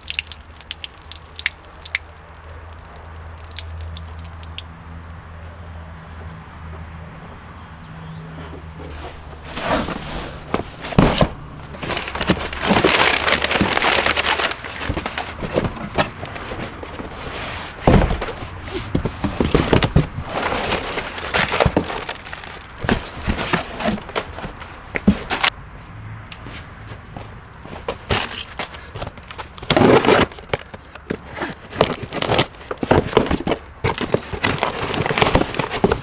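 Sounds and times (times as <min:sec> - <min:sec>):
rustling: 0:08.0 - 0:36.0.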